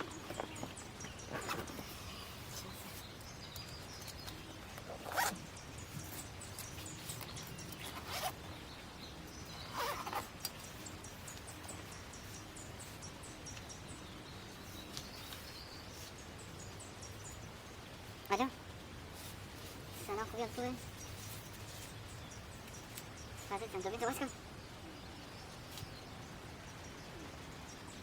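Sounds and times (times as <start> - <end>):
zipper being pulled: 4.9 - 5.4, 7.8 - 8.4, 9.7 - 10.3.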